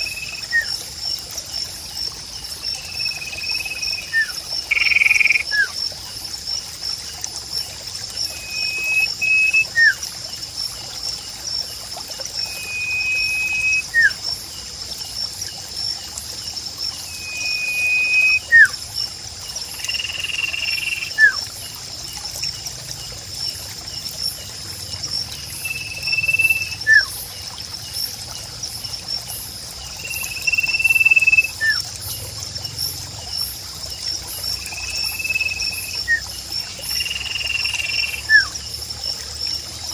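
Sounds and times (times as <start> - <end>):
insects trilling: 0.0 - 39.9
water trickling: 0.0 - 39.9
long flat whistled bird call: 8.4 - 10.0, 12.5 - 14.2, 17.1 - 18.8, 25.6 - 27.1.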